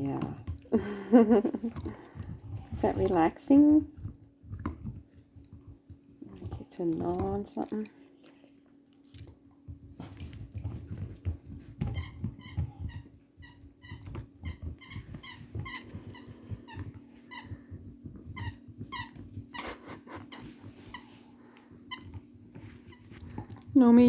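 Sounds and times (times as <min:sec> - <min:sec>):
dog gnawing and chomping: 0:03.8 - 0:17.0, 0:22.9 - 0:23.8.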